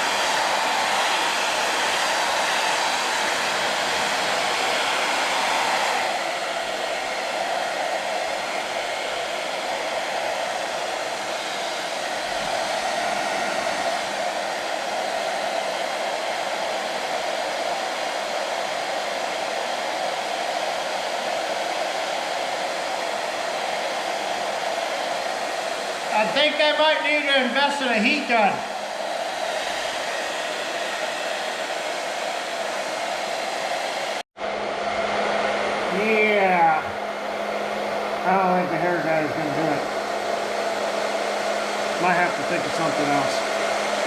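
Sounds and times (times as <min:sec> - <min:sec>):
hair dryer running: 0:00.0 - 0:44.0.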